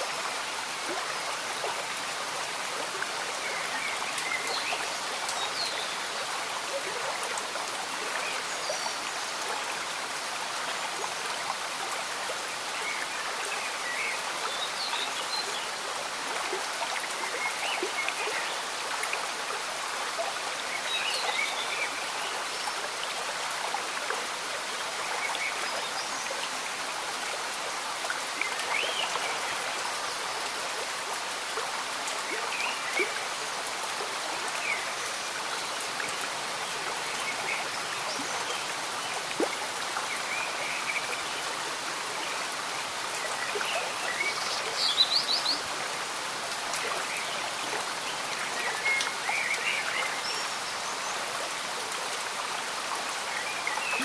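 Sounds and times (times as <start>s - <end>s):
gentle rain: 0.0s - 54.0s
stream bubbling and gurgling: 0.0s - 54.0s.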